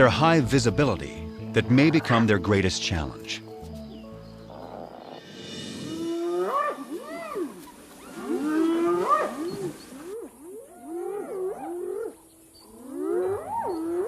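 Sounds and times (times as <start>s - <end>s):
hyenas calling: 4.4s - 5.3s, 5.9s - 14.0s.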